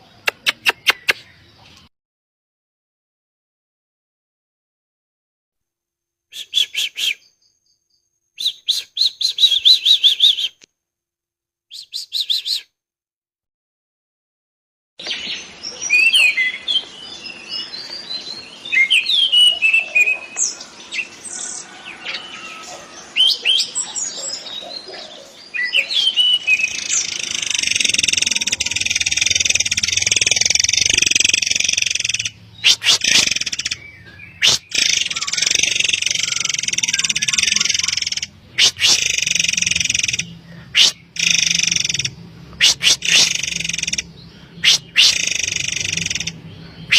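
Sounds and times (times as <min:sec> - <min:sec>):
bird chirping and trilling: 0:00.0 - 0:01.6, 0:06.3 - 0:10.6, 0:15.0 - 0:46.9.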